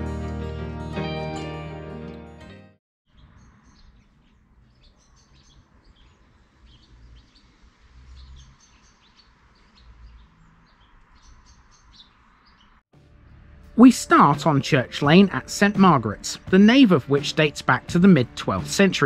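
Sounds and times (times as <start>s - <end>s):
small birds chirping: 3.0s - 13.4s.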